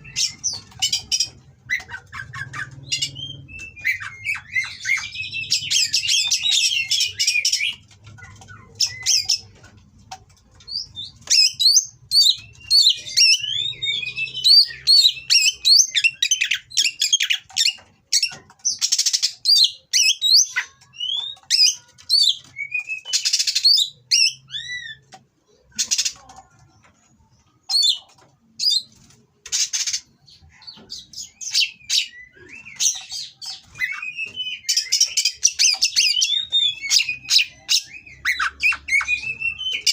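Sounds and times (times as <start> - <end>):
bird singing whistled phrases: 33.7 - 39.9.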